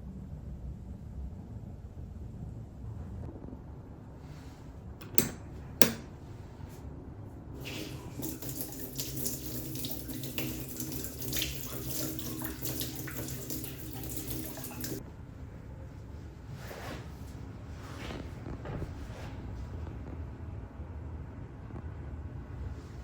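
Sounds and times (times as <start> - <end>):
tap water running into basin: 7.6 - 15.0.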